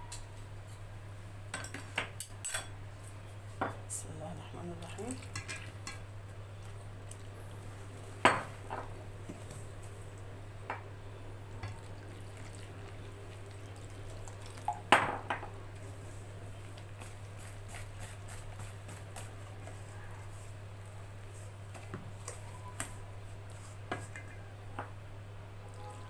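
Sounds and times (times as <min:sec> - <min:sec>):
kitchenware clinking on a bowl: 0:01.5 - 0:02.8
water pouring: 0:11.7 - 0:14.9.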